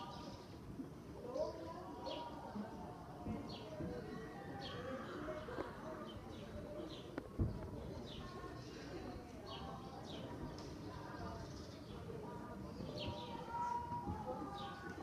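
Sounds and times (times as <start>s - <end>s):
faint distant voices: 0.0s - 15.0s
small birds chirping: 3.3s - 15.0s.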